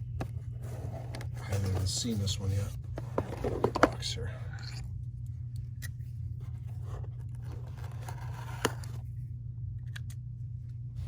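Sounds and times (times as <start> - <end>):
steady low hum: 0.0 - 11.0
cardboard scraping and rustling: 0.3 - 4.0, 6.5 - 9.0.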